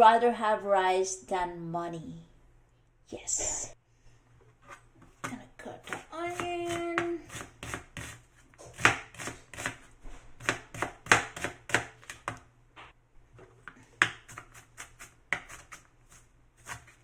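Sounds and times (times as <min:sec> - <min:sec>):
knife chopping onion on board: 0:05.0 - 0:12.4, 0:14.0 - 0:17.0.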